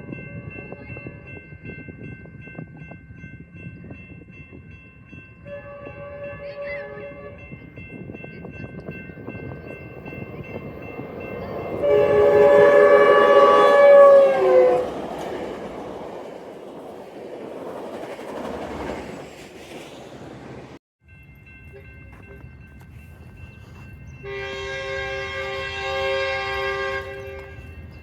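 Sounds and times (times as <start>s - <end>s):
passing train rumble: 0.0s - 28.0s
train horn: 5.4s - 7.5s, 11.6s - 15.0s, 24.2s - 27.8s.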